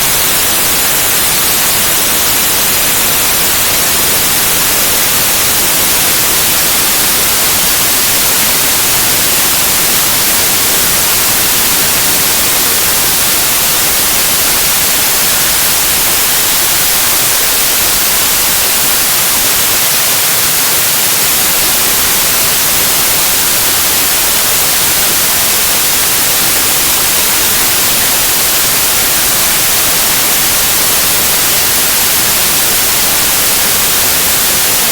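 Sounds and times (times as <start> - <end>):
steady white noise hiss: 0.0 - 34.9.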